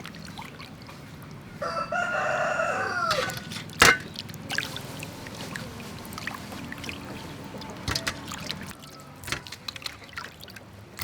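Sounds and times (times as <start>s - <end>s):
rooster crowing: 1.6s - 3.5s.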